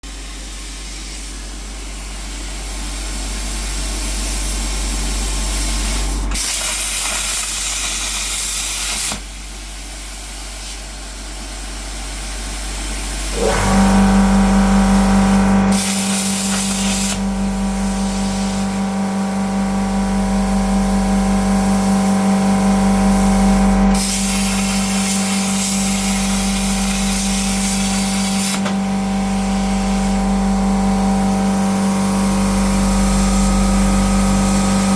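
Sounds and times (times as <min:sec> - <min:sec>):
plasma cutter arc hissing: 0:00.2 - 0:34.9
steady electrical hum: 0:09.2 - 0:34.9
motor whining and droning: 0:13.3 - 0:34.9.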